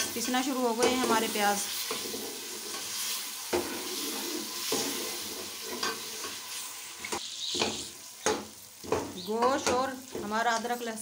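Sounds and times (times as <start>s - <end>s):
chicken sizzling in hot oil: 0.0s - 11.0s
metal spoon scraping a pot: 0.2s - 6.6s.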